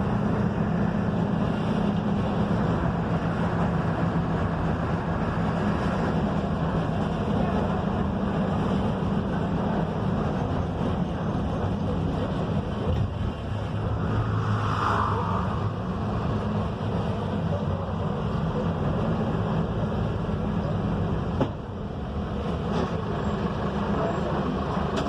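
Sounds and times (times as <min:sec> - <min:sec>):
bus diesel engine running: 0:00.0 - 0:25.0
road and body noise: 0:00.0 - 0:25.0.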